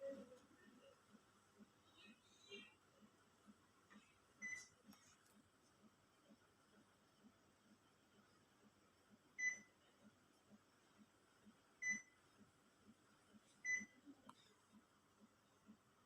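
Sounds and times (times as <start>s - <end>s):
air conditioner beeps: 4.4s - 4.9s, 9.4s - 9.8s, 11.8s - 12.2s, 13.6s - 14.2s.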